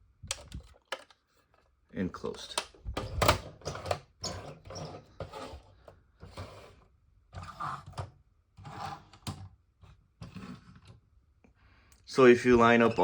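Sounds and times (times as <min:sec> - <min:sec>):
plastic toy train clacks and scrapes: 0:03.4 - 0:09.5.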